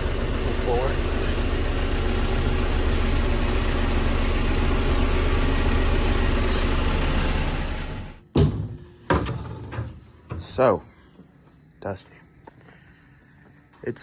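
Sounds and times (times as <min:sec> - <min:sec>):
tractor diesel engine running: 0:00.0 - 0:08.2.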